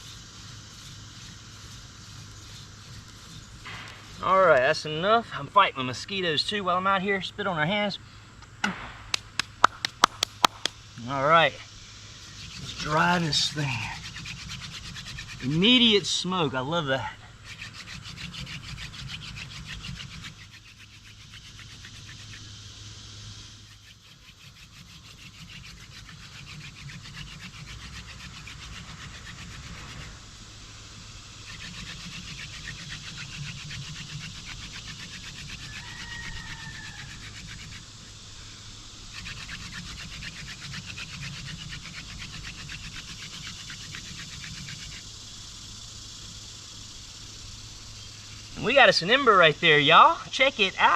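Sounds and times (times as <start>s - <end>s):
spindle rasping on fireboard: 0.0s - 5.0s, 12.2s - 22.6s, 23.4s - 30.3s, 31.4s - 38.2s, 39.1s - 45.1s.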